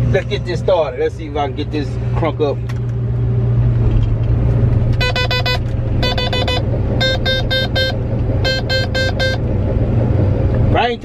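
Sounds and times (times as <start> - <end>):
engine drone inside cab: 0.0 - 11.0
electronic alarm beeps: 5.0 - 9.5.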